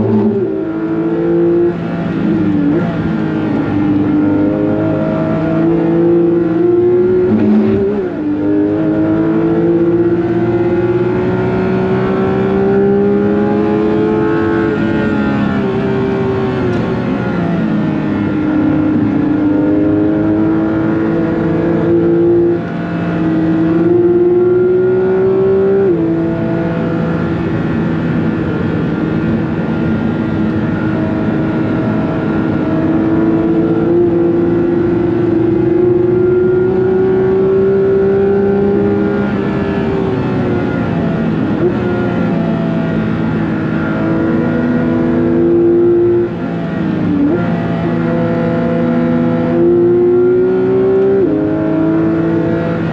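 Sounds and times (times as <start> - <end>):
car engine accelerating hard: 0.0 - 52.9.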